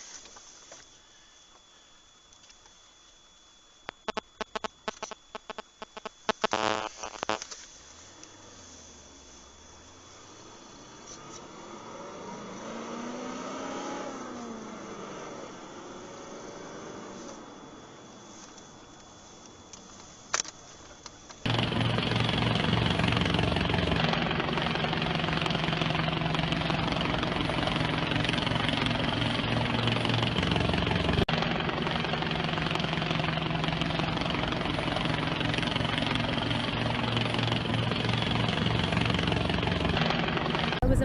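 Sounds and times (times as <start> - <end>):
aircraft engine running: 21.4 - 41.0.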